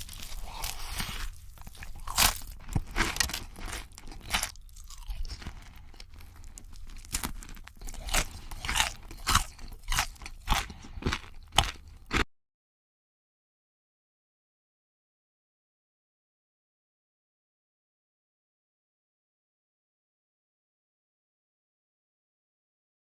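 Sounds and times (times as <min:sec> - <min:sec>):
crunchy chewing: 0:00.0 - 0:12.2.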